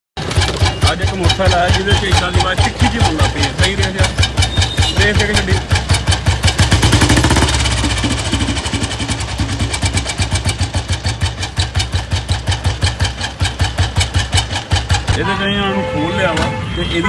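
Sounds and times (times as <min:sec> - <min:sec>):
motorcycle engine idling: 0:00.2 - 0:16.0
sharp mechanical engine noise: 0:00.2 - 0:16.8.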